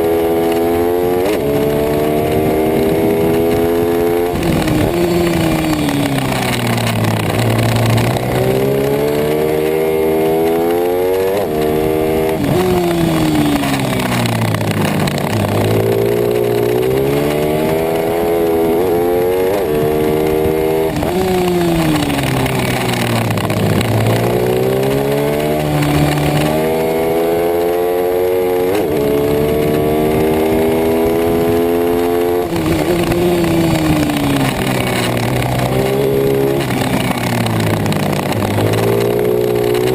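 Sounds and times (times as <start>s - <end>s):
pit bike engine revving: 0.0s - 39.9s.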